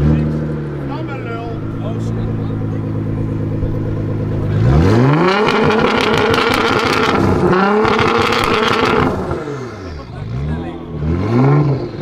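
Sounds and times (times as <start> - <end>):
car engine revving: 0.0 - 12.0
exhaust crackles and pops: 2.0 - 9.4.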